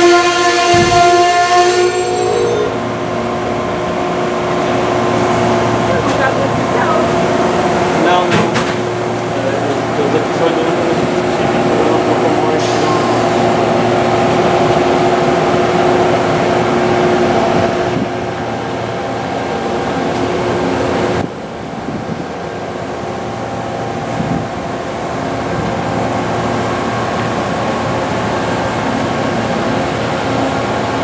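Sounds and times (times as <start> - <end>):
train mechanical drone and hum: 0.0 - 31.0.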